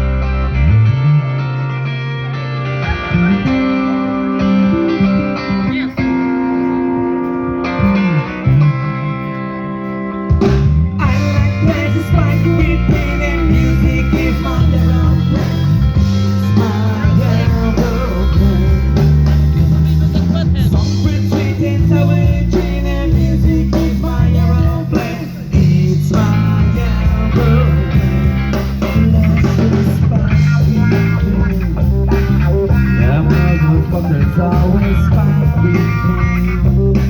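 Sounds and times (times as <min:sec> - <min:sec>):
bass line: 0:00.0 - 0:37.0
drums: 0:00.0 - 0:37.0
electric guitar: 0:00.0 - 0:37.0.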